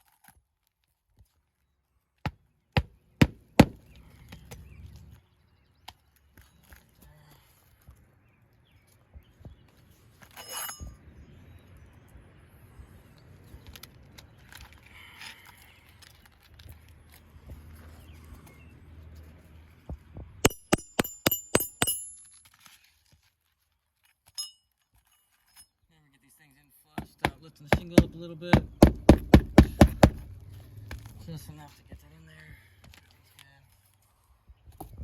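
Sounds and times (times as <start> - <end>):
hammer ringing on metal: 20.5 - 22.2.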